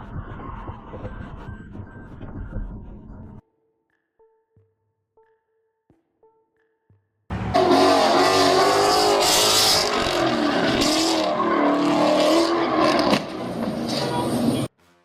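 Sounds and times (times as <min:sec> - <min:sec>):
car engine revving hard: 0:07.3 - 0:14.7.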